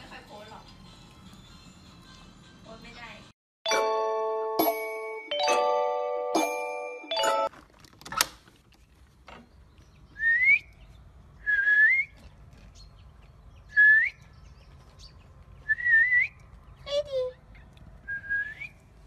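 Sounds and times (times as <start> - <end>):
whistling rising notes: 10.2 - 10.7, 15.7 - 16.4, 18.1 - 18.9.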